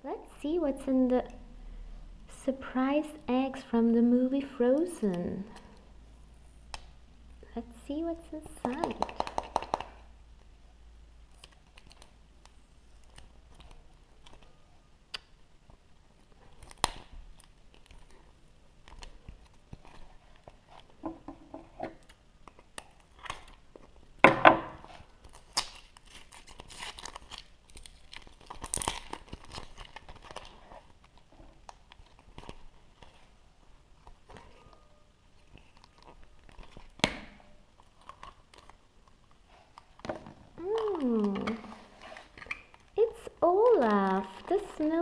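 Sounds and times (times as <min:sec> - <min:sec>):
clicks and cracks of handling: 0:11.3 - 0:14.5, 0:16.5 - 0:18.2, 0:18.8 - 0:20.9, 0:21.9 - 0:23.9, 0:25.2 - 0:33.1, 0:35.4 - 0:41.6
foil wrapper tearing and crinkling: 0:16.3 - 0:20.9, 0:25.2 - 0:33.2, 0:35.4 - 0:37.0.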